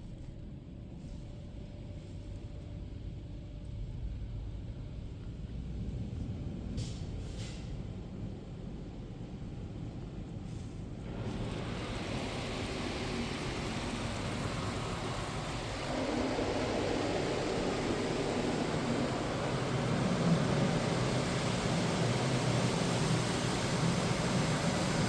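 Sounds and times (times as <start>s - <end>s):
car wash machinery rushing: 11.0s - 25.0s.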